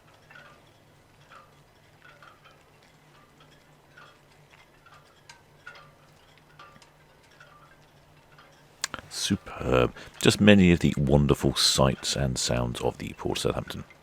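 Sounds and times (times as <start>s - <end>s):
faint uneven ticking: 0.0s - 14.0s
low steady hum: 8.2s - 14.0s.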